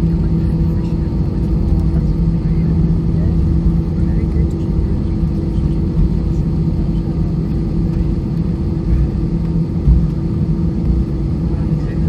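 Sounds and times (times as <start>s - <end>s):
aircraft engine hum: 0.0s - 12.0s
low cabin rumble: 0.0s - 12.0s.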